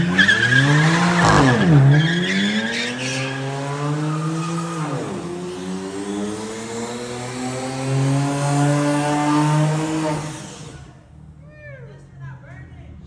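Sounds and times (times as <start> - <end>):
tyre squeal: 0.0 - 5.3
car engine revving: 0.0 - 10.9.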